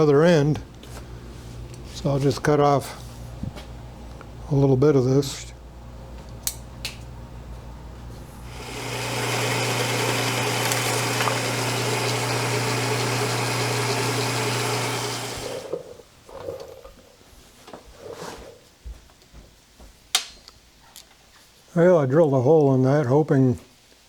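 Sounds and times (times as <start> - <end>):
small power tool whirring: 8.4 - 15.9.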